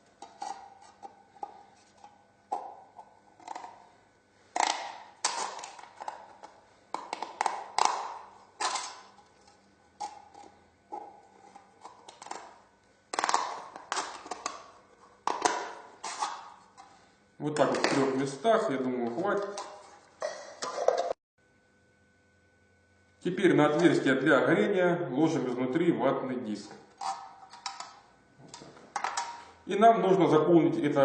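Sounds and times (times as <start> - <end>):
tin can being cut: 4.6 - 6.3, 7.0 - 9.2, 15.3 - 16.5, 27.0 - 27.9.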